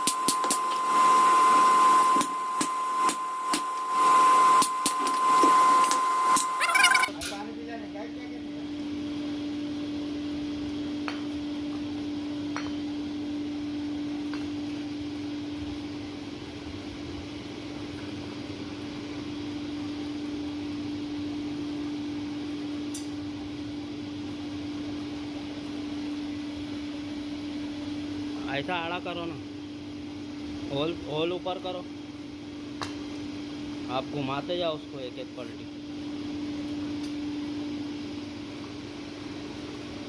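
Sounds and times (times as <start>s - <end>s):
workshop noise: 5.9s - 7.3s.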